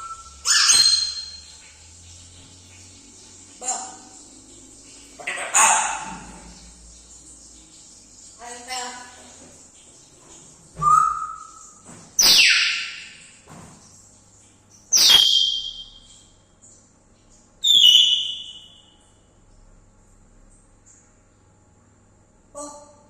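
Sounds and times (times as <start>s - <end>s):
parrot squawking and whistling: 0.0s - 1.5s, 10.8s - 13.2s, 14.9s - 16.0s, 17.6s - 18.8s.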